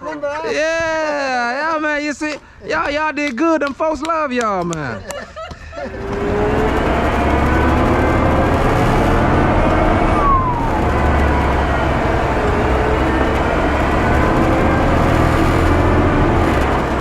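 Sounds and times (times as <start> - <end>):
diesel truck engine running: 5.9 - 17.0
falling whistle: 8.6 - 13.5.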